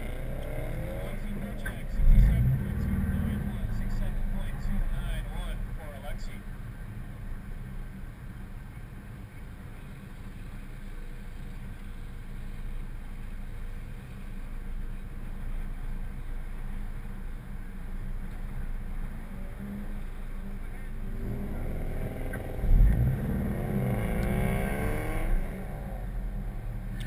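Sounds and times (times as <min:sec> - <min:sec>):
car engine idling: 0:00.0 - 0:21.3.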